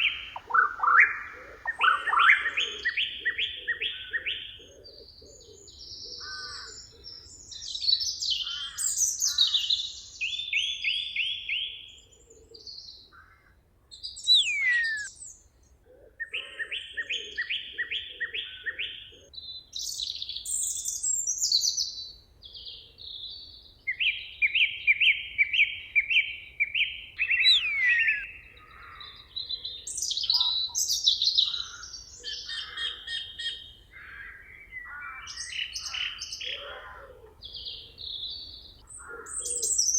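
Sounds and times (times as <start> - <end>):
songbirds singing: 0.0 - 39.9
sharp falling whistle: 14.3 - 15.1, 27.5 - 28.3.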